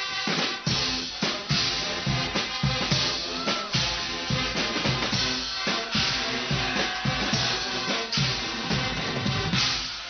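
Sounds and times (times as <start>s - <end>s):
bass drum and snare beat: 0.0s - 10.0s
brass band playing: 0.0s - 10.0s.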